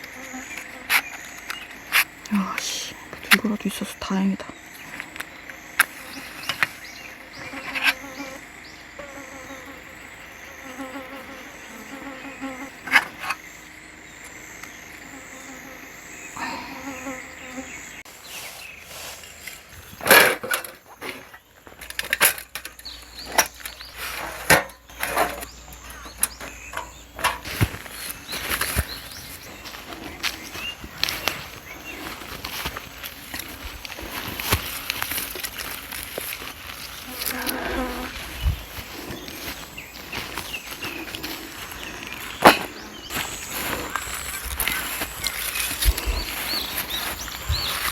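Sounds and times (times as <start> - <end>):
insects chirping: 0.0 - 47.9
rustling: 26.8 - 47.9.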